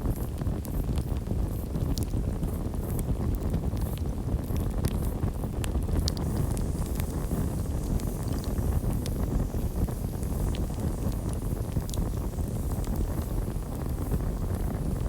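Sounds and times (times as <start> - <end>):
burning wood crackling: 0.2 - 15.0
campfire low rushing noise: 0.2 - 15.0.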